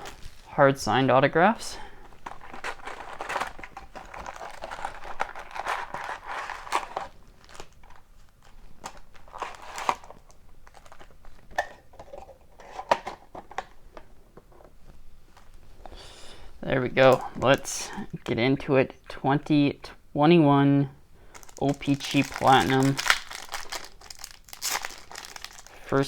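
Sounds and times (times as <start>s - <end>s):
plastic wrap crinkling: 0.0s - 13.8s, 16.8s - 18.3s, 21.2s - 26.0s
box being handled and opened: 2.0s - 15.6s, 16.9s - 18.2s, 21.3s - 25.7s.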